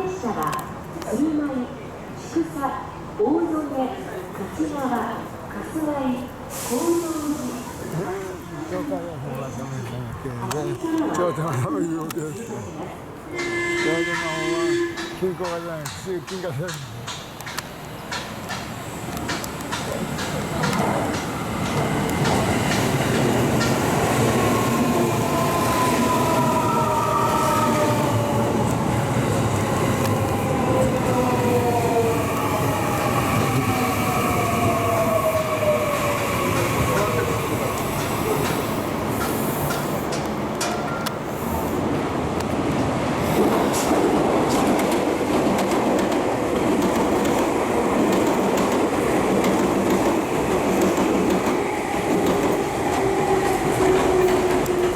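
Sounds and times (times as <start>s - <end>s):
train wheels clattering over joints: 13.4s - 24.4s, 36.4s - 41.2s.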